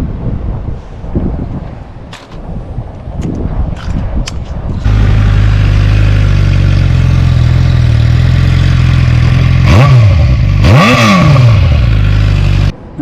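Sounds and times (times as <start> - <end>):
motorcycle engine idling and revving: 4.8 - 12.8.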